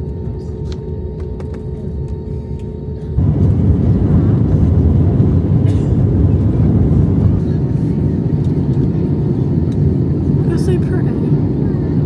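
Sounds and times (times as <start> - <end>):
vehicle road and engine rumble: 2.7 - 12.0.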